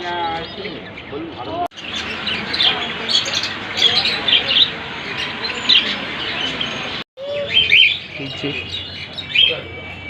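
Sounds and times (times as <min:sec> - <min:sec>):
caged birds chirping: 0:00.0 - 0:10.0.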